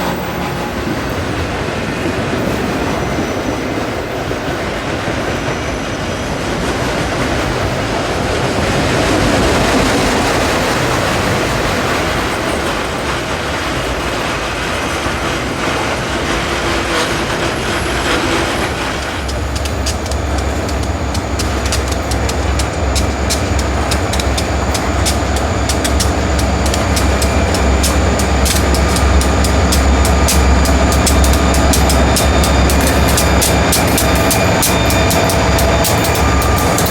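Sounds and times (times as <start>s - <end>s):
freight train wheels on rails: 0.0s - 36.9s
sharp clicks: 18.9s - 36.9s.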